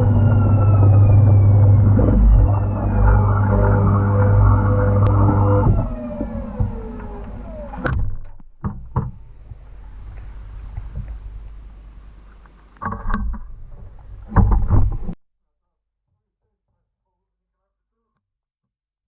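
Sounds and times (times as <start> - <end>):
washing machine spinning down: 0.0 - 7.9.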